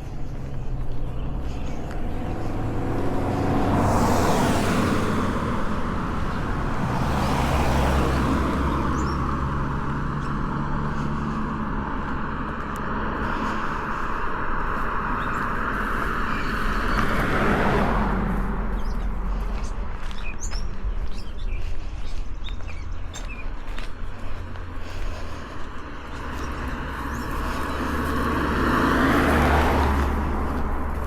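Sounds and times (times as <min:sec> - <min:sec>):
cars passing on paved road: 0:00.0 - 0:31.0
steady low rumble: 0:09.8 - 0:28.5.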